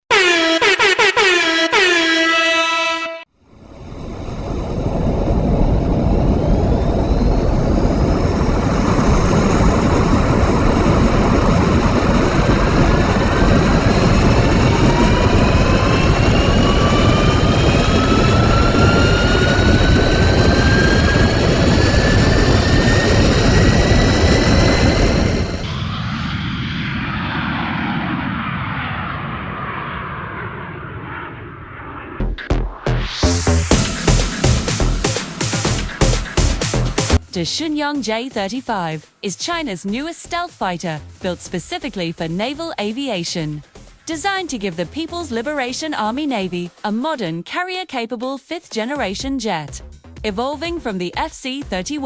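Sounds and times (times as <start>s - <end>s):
horn-like tones dipping in pitch: 0.0s - 3.3s
jet engine spooling up: 3.5s - 47.3s.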